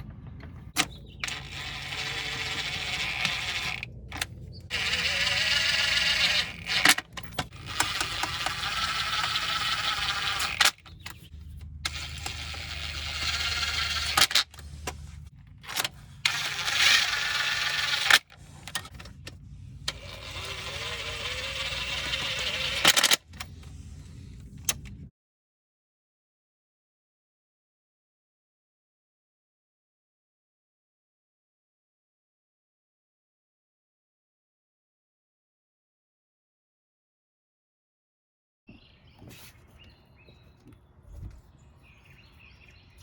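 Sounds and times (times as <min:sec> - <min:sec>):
sharp clicks: 0:00.0 - 0:23.8
high wavering motor whine: 0:00.0 - 0:24.7.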